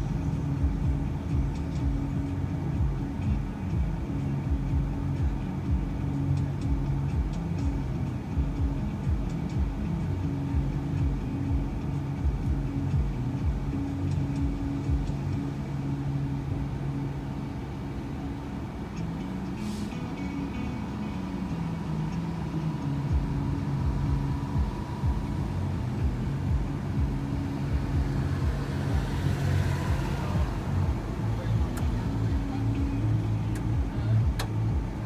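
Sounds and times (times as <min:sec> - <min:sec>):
van engine and road noise: 0:00.0 - 0:35.0
brief hiss: 0:19.6 - 0:20.1.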